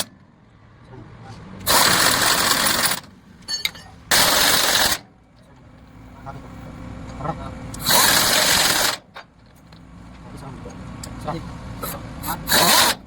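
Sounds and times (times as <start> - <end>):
pneumatic impact wrench hammering: 1.6 - 5.0, 7.8 - 9.3, 11.8 - 13.0.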